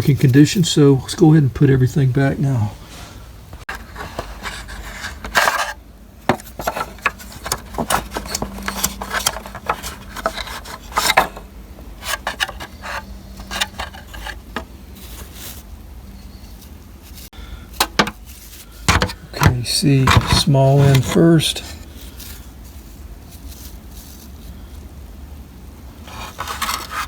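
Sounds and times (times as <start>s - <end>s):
plastic parts clicking and tapping: 3.7s - 14.7s, 17.8s - 18.2s, 18.9s - 21.2s.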